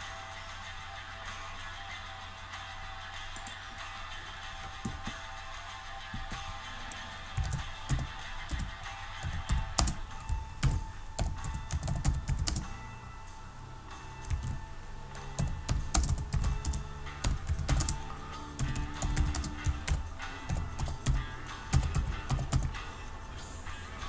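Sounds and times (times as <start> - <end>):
quiet background music: 0.0 - 24.0
computer keyboard typing: 4.6 - 12.7, 14.2 - 14.6, 15.3 - 23.0.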